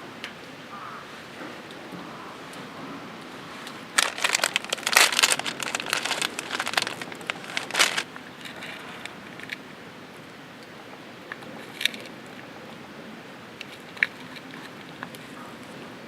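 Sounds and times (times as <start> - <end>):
plastic packaging crinkling: 4.0 - 9.6.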